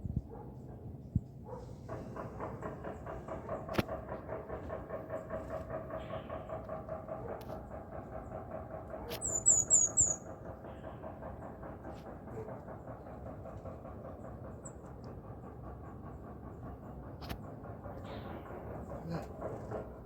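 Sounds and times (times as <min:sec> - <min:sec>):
steady rhythmic rumble: 0:00.0 - 0:20.0
small bird high chirps: 0:09.2 - 0:10.2.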